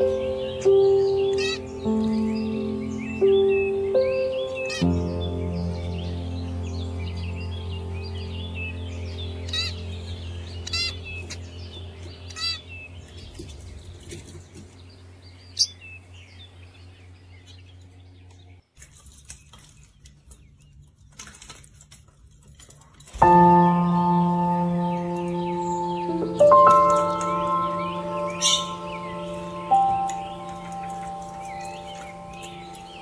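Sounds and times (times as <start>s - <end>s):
steady low hum: 0.0s - 18.6s
small birds chirping: 0.0s - 33.0s.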